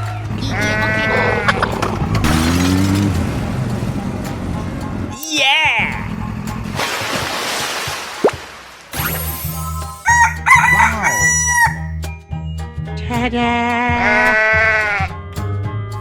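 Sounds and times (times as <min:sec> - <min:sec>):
background music with bass: 0:00.0 - 0:06.8, 0:09.0 - 0:16.0
rooster crowing: 0:10.0 - 0:12.0.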